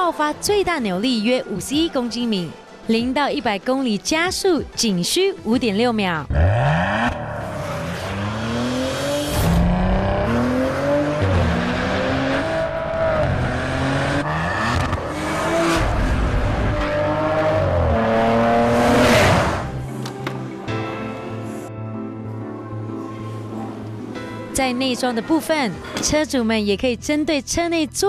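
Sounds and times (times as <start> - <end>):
car engine accelerating hard: 6.3 - 19.8
loud rushing sweep: 6.6 - 19.8.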